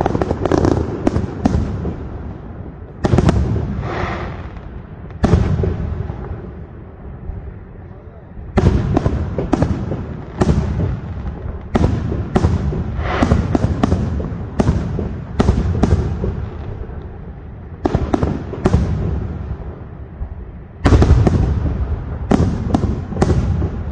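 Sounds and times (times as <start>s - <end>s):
firework shells bursting: 8.6s - 17.1s.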